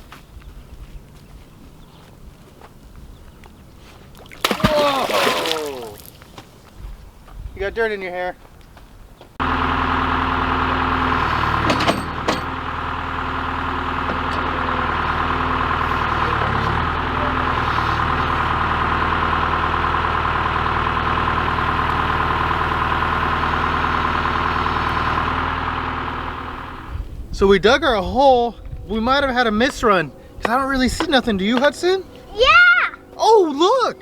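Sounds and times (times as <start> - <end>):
backhoe engine running: 9.3 - 34.0.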